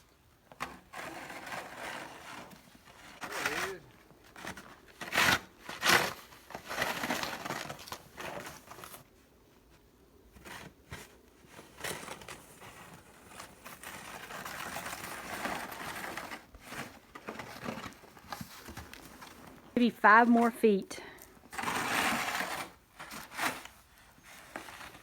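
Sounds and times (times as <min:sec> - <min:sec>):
snow shovel scraping: 0:00.6 - 0:03.8, 0:11.6 - 0:20.8, 0:21.5 - 0:25.0.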